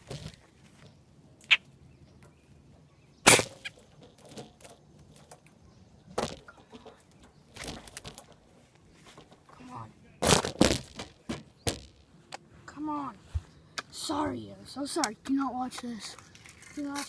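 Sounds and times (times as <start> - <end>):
sharp cracks and knocks: 3.2 - 8.4, 10.2 - 12.4.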